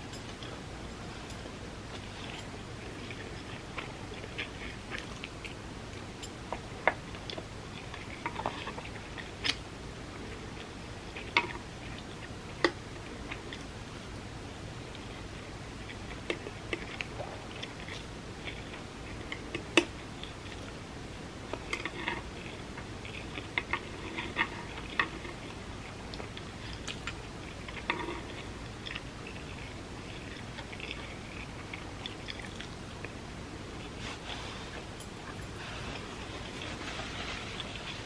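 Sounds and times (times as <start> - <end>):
person chewing: 0.1 - 9.6, 14.9 - 20.8, 21.5 - 38.0.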